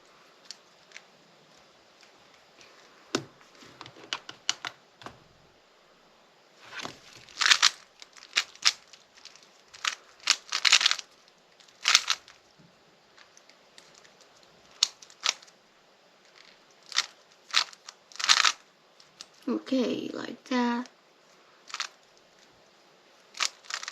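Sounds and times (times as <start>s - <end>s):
plastic puzzle cube clicking: 3.2s - 5.2s, 7.2s - 12.4s, 13.2s - 15.5s, 16.4s - 19.4s, 21.7s - 22.0s, 23.3s - 23.9s.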